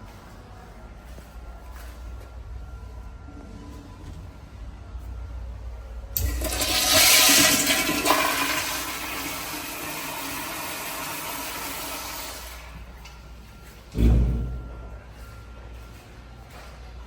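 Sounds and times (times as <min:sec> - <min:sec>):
toilet flushing: 0:06.2 - 0:12.8.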